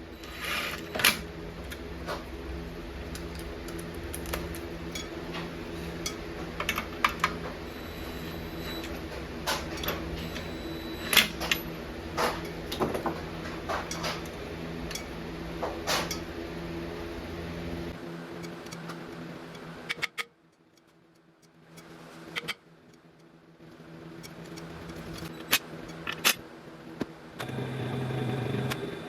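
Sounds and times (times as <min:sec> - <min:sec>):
lathe motor hum: 0:27.4 - 0:29.0.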